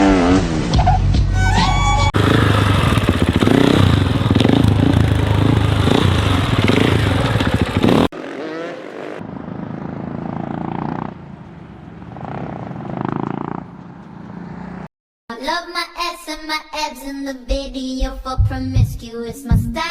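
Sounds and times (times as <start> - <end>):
motorcycle engines revving: 2.2 - 14.9.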